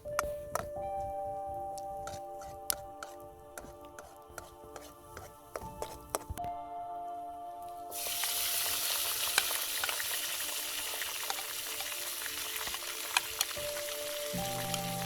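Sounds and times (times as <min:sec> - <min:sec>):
food sizzling in a pan: 0:07.9 - 0:15.0.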